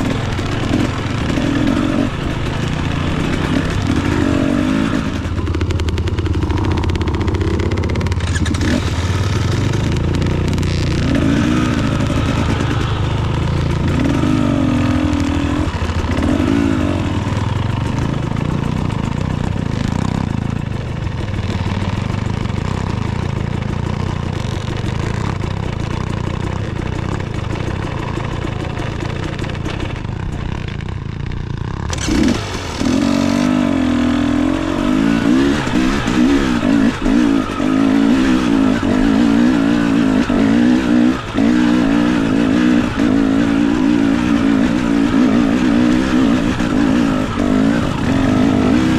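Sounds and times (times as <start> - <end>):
dirt bike engine revving: 0.0 - 48.9
bike clattering on rocky trail: 24.1 - 33.6.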